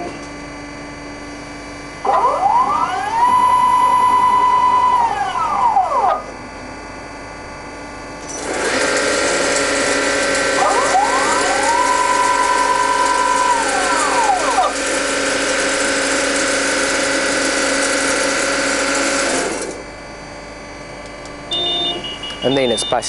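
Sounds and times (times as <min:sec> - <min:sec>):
rising whine: 0:00.0 - 0:23.0
bandsaw machine hum: 0:01.9 - 0:07.2, 0:07.8 - 0:20.0.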